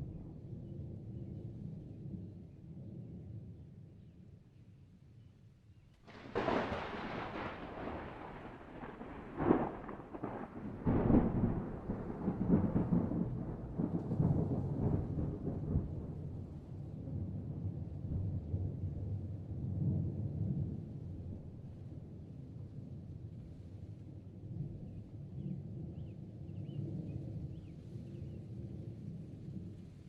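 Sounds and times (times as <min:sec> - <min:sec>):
thunder cracks: 0:06.1 - 0:16.4
low rolling thunder rumble: 0:06.1 - 0:23.4.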